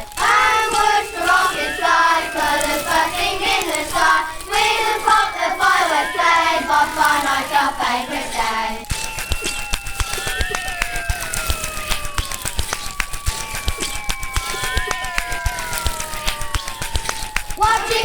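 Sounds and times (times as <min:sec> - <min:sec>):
children singing: 0:00.0 - 0:09.6, 0:17.6 - 0:18.0.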